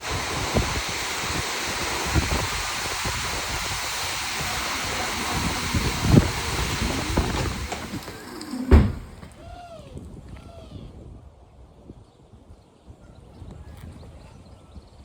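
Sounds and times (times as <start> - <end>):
steady rain falling: 0.0 - 9.4.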